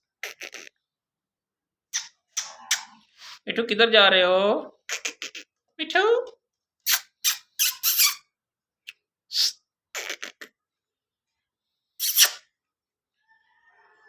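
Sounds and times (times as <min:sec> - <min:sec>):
parrot squawking: 0:04.9 - 0:05.5, 0:06.9 - 0:08.3.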